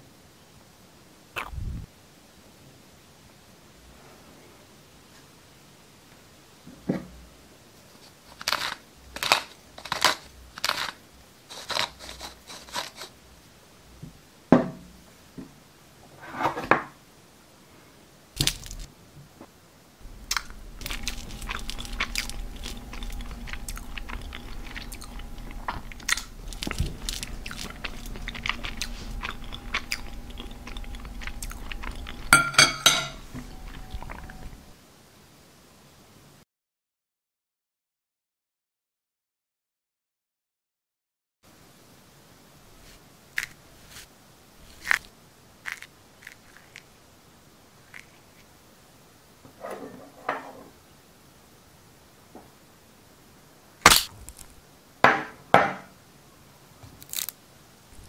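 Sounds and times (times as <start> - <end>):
faint steady hum: 0.0 - 36.4, 41.5 - 58.0
crunchy chewing: 8.0 - 13.2, 20.0 - 34.6, 42.8 - 47.0, 47.8 - 48.5, 57.0 - 57.4.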